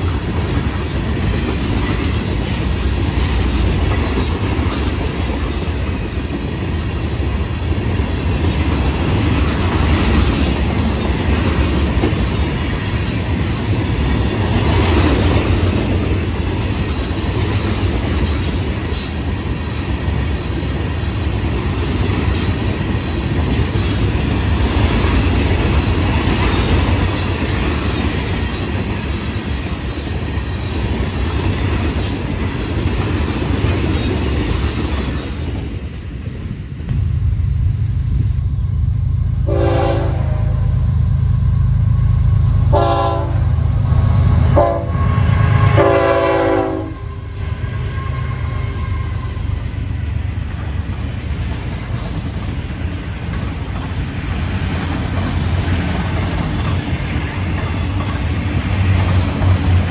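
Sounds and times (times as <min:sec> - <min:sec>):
rumble of wheels on rails: 0:00.0 - 0:59.9
high-pitched wheel squeals: 0:47.0 - 0:49.7.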